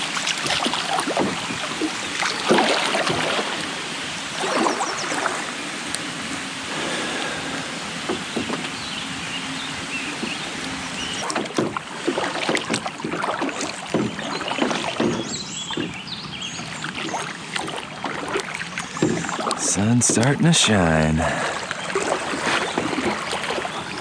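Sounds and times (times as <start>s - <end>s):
paddle splashing in water: 0.0s - 24.0s
steady watery hiss: 5.9s - 8.4s.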